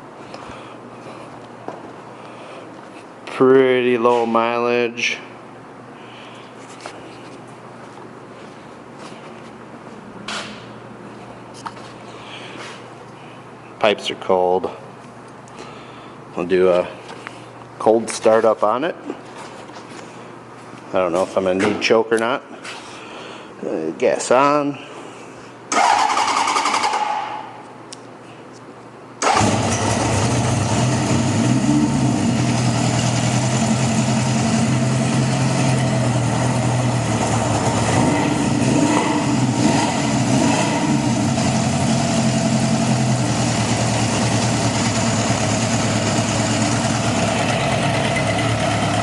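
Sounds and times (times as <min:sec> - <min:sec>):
motorcycle engine starting and idling: 0:25.7 - 0:27.5, 0:29.2 - 0:49.0.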